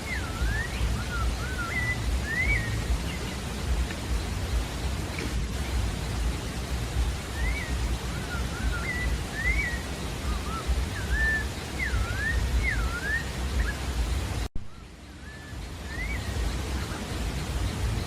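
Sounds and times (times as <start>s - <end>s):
steady hiss: 0.0s - 18.0s
thrush singing whistled phrases: 0.0s - 18.0s.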